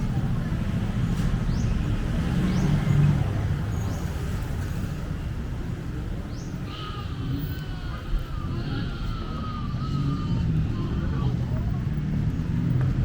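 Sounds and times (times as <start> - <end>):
vehicle passing by: 0.0 - 5.1
vehicle engines rumbling: 0.0 - 13.0.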